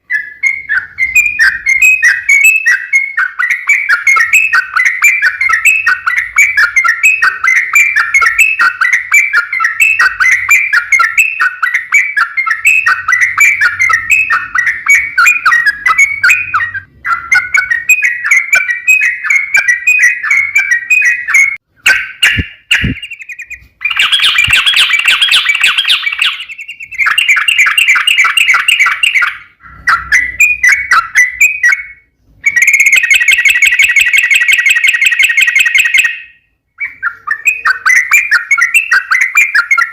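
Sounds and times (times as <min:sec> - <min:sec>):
bird chattering song: 0:00.0 - 0:39.9.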